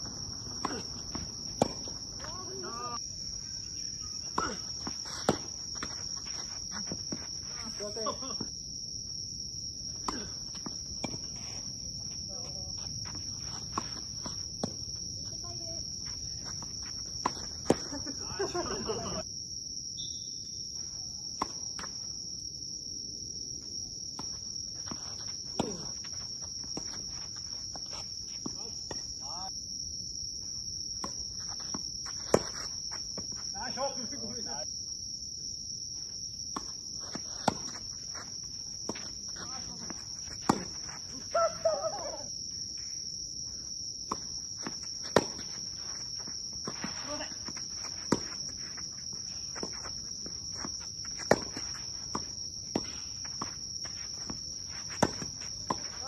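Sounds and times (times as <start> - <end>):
tennis ball strikes: 0.0 - 2.4, 37.3 - 37.8, 39.9 - 41.0, 44.1 - 45.6, 47.4 - 48.5, 49.6 - 53.6, 54.2 - 56.0
high-pitched insect drone: 0.0 - 9.2
insect chirring: 0.0 - 56.0
person calling out: 2.2 - 3.0, 41.2 - 42.3.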